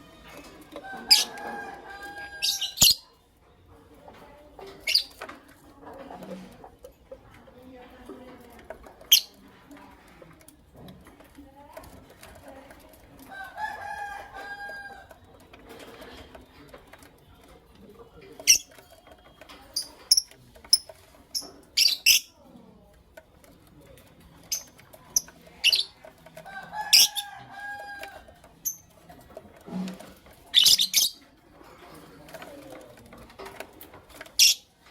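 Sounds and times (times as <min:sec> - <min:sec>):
lovebirds chirping: 0:02.4 - 0:03.2.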